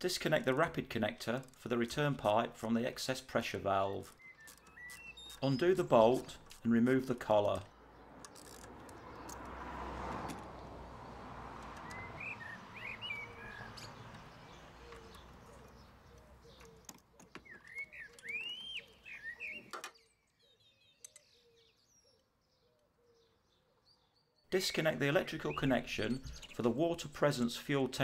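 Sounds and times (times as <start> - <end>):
small birds chirping: 3.1 - 27.5
faint clicks: 11.6 - 12.0.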